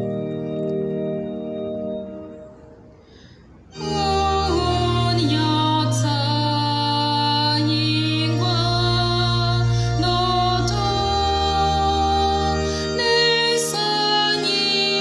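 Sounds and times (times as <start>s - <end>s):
keyboard and bass accompaniment: 0.0s - 15.0s
organ chord: 0.0s - 15.0s
woman singing gospel: 3.8s - 15.0s.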